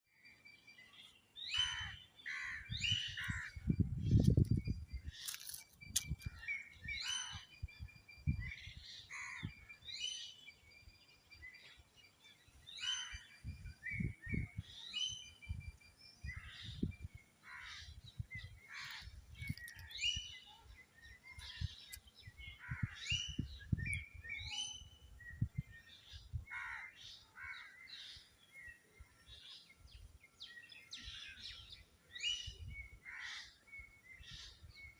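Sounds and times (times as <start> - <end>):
birds chirping and calling: 0.1 - 34.9.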